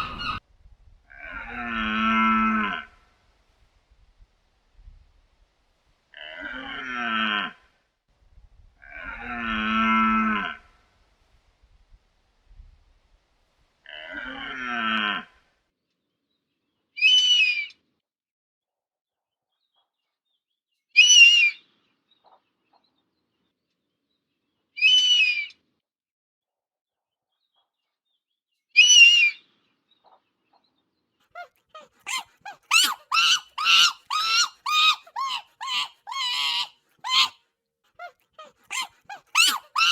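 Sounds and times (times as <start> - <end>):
eagle screaming: 0.0 - 0.4, 31.4 - 37.4, 38.0 - 39.9
monkey chattering: 0.0 - 0.4, 31.4 - 37.4, 38.0 - 39.9.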